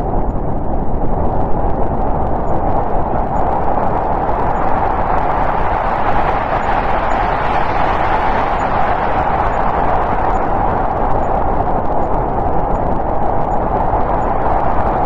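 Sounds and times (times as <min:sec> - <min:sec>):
snowstorm wind blowing: 0:00.0 - 0:15.0.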